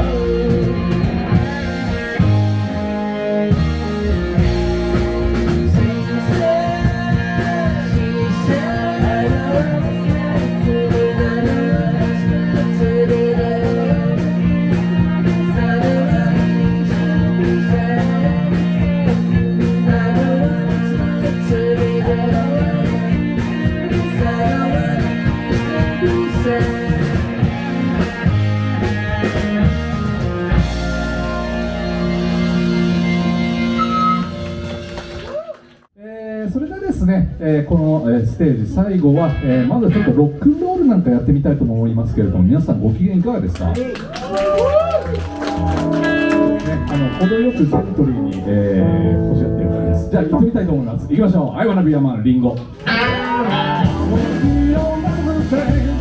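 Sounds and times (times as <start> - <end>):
steady drum beat: 0.0 - 2.8, 3.5 - 35.3, 53.8 - 56.0
electric guitars: 0.0 - 35.8, 39.0 - 40.4, 44.0 - 51.1, 52.6 - 56.0
bass guitar: 0.0 - 35.9, 36.5 - 56.0.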